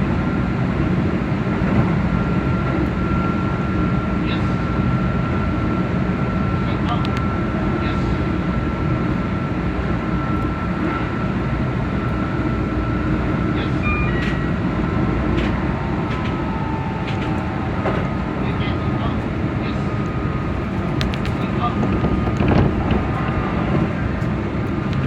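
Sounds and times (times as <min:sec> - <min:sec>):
train wheels rumbling: 0:07.1 - 0:25.0.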